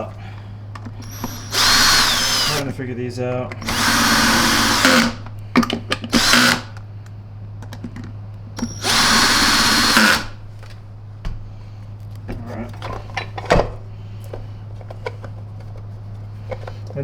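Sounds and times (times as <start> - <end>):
power drill driving screws: 1.0 - 2.6, 3.6 - 5.2, 6.1 - 6.8, 8.6 - 10.4.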